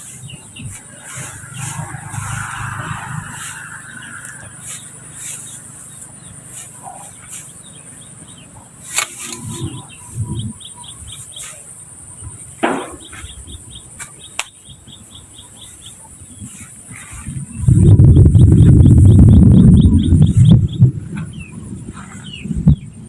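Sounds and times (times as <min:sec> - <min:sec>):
insect drone: 0:00.0 - 0:23.0
quick repeated bird chirps: 0:00.0 - 0:23.0
sharp knocks: 0:12.6 - 0:13.2.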